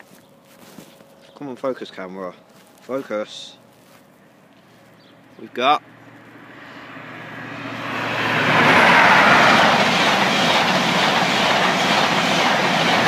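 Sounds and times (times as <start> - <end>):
train wheels rumbling on rail: 6.1 - 13.0.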